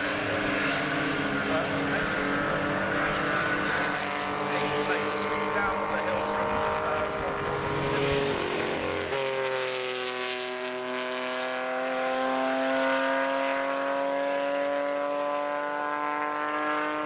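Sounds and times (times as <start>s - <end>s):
racing car engine at full throttle: 0.0s - 17.0s.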